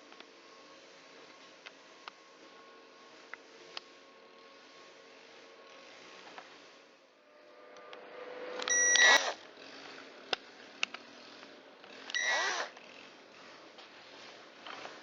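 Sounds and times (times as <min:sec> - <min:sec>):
cordless driver whining: 0:08.6 - 0:13.2.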